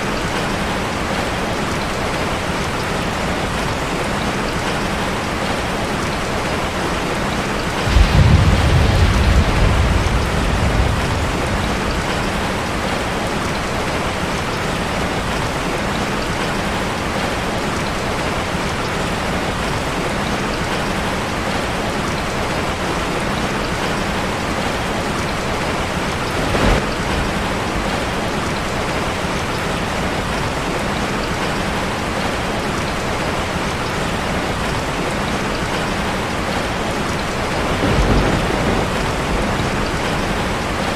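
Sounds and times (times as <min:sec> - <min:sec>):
rain on a metal roof: 0:00.0 - 0:40.9
thunder rumbling: 0:06.2 - 0:15.4, 0:23.4 - 0:30.4, 0:36.6 - 0:40.9.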